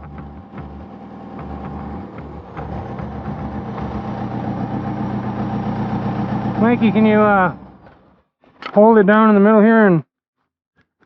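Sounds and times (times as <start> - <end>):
diesel engine running: 0.0 - 8.2.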